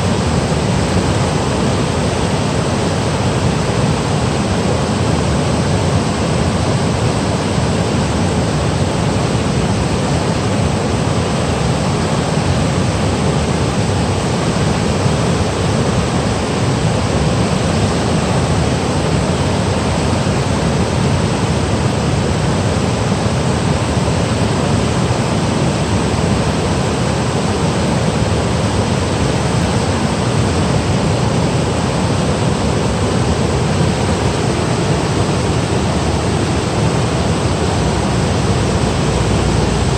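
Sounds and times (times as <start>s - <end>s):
stream cascading over rocks: 23.1s - 39.9s.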